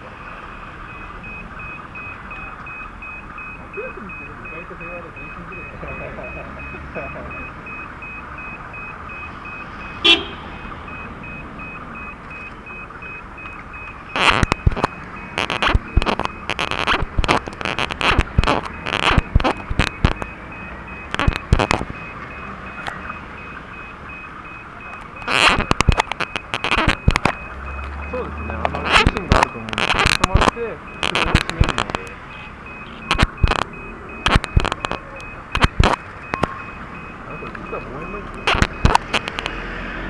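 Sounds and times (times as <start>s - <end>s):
horn toot: 10.0s - 10.5s.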